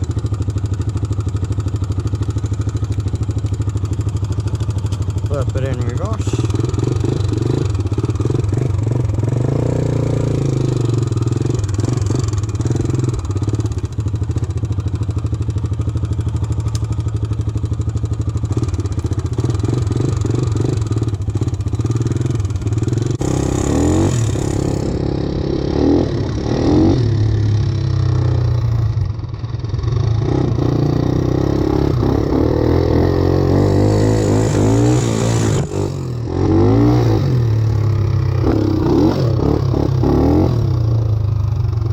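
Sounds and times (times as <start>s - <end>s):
tractor engine revving: 5.3s - 14.0s, 18.5s - 29.1s, 30.0s - 41.9s.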